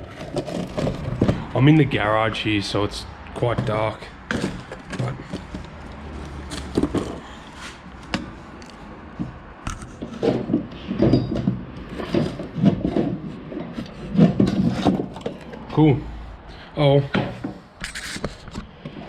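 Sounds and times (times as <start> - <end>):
grease gun clicks and knocks: 8.0 - 10.1.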